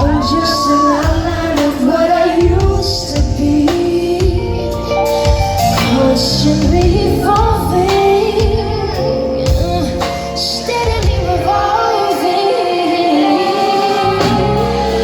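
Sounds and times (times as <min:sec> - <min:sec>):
low drum beat: 0:00.0 - 0:04.7, 0:05.3 - 0:10.2
woman singing with band: 0:00.0 - 0:15.0.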